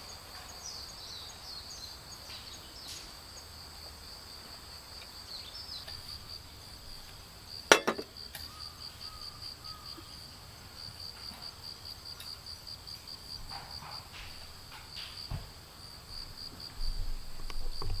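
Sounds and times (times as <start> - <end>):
insects trilling: 0.0 - 18.0
sharp knock: 7.7 - 8.1.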